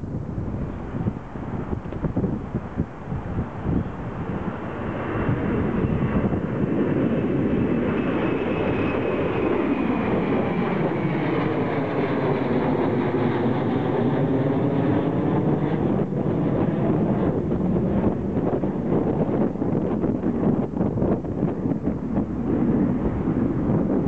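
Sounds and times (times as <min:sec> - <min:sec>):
jet engines roaring with whine: 0:00.0 - 0:24.0.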